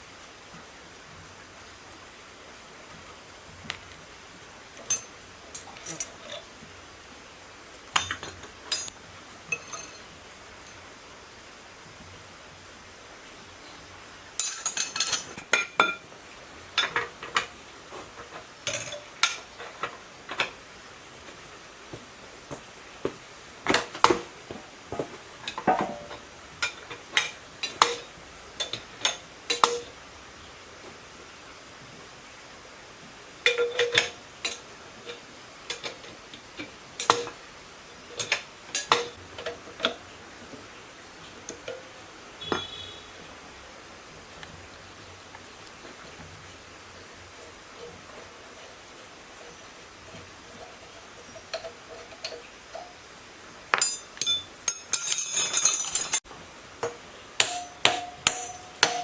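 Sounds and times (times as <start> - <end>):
metal tools clinking: 4.8 - 6.4, 8.0 - 10.8, 14.4 - 16.0, 18.7 - 19.9, 37.0 - 37.4, 38.1 - 39.2, 53.7 - 56.2, 57.4 - 59.0.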